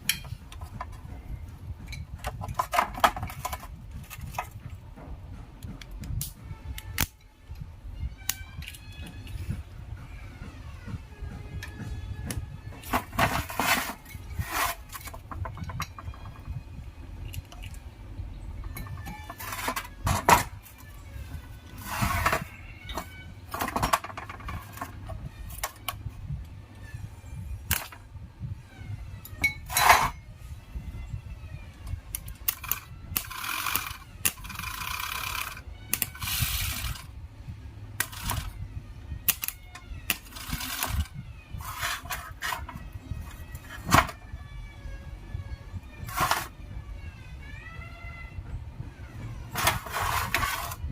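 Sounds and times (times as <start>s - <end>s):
metal scraping: 12.7s - 16.5s, 18.6s - 25.9s, 29.2s - 30.4s, 40.1s - 44.2s, 45.9s - 46.6s, 49.5s - 50.9s
metal tools clinking: 29.3s - 30.2s.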